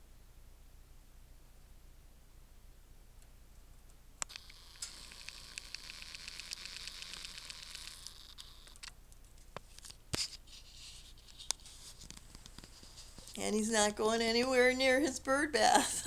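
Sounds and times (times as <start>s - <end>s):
canary ticking and rustling: 3.8s - 15.7s.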